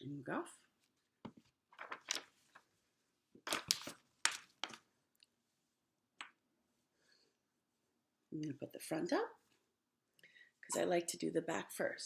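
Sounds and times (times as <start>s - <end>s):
hands handling objects: 0.8s - 2.7s.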